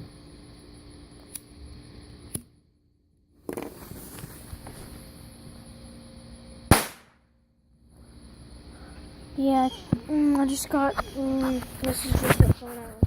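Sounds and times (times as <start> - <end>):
footsteps: 10.9 - 13.0.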